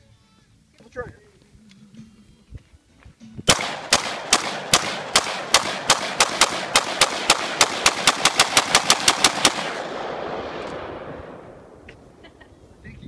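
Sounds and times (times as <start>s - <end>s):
rifle firing rapid shots: 3.5s - 11.4s.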